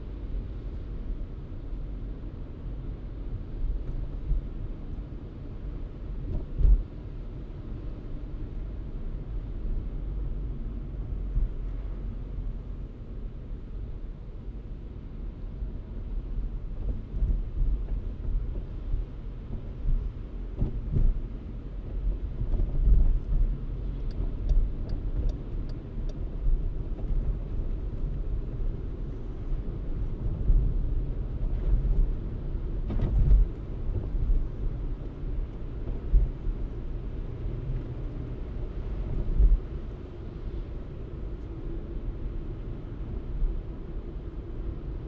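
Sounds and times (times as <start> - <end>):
car driving rumble: 0.1 - 45.0
light ticks: 22.5 - 28.1.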